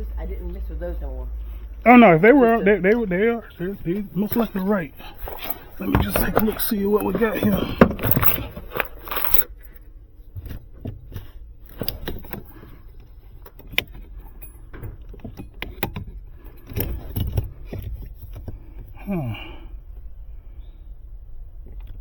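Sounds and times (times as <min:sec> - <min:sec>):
low steady hum: 0:00.0 - 0:22.0
small parts clicking and rattling: 0:04.3 - 0:09.8.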